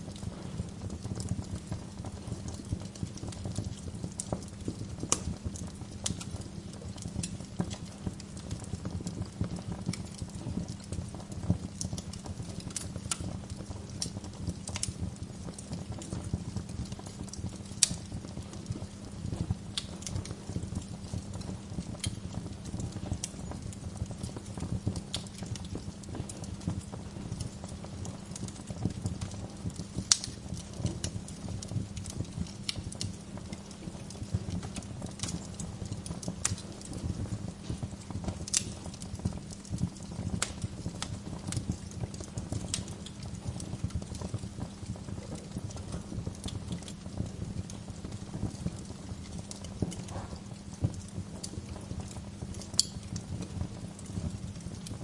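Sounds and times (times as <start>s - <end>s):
logs crackling and popping: 0.0s - 55.0s
low rumble of flames: 0.0s - 55.0s.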